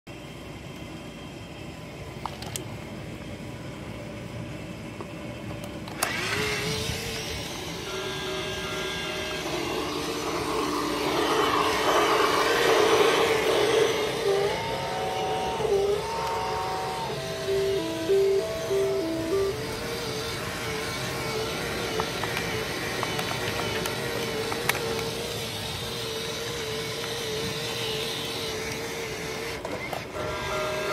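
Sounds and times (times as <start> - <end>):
electronic held tones and hiss: 0.1 - 30.9
toy train electric motor running: 5.6 - 30.9
electronic tune of stepped notes: 7.9 - 21.1
toy train clicks: 17.2 - 30.2.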